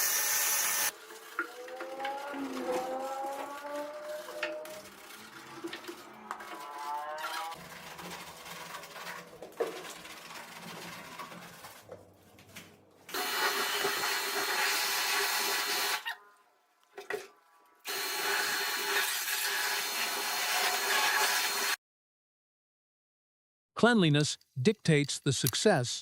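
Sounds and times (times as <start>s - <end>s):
power tool whine and scrubbing: 0.0s - 11.9s, 13.1s - 16.1s, 17.9s - 21.8s.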